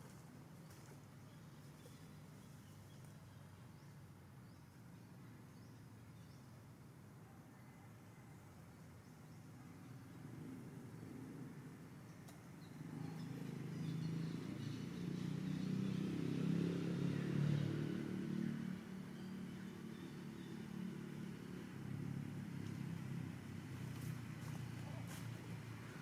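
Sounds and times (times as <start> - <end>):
motor vehicle passing by: 9.8 - 26.0.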